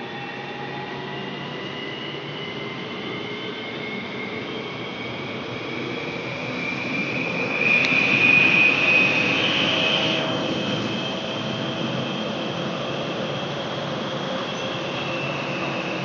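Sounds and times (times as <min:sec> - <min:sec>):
high motor whine: 0:06.1 - 0:16.0.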